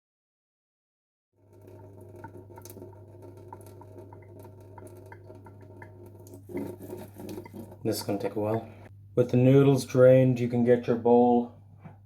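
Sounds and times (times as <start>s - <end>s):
drips pattering: 1.4s - 8.9s
water draining into a sink: 1.4s - 8.9s
steady low hum: 2.6s - 12.0s.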